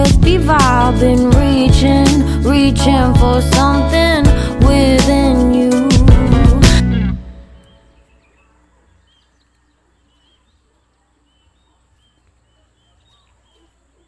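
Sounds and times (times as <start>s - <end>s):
faint birds chirping: 7.0s - 14.0s.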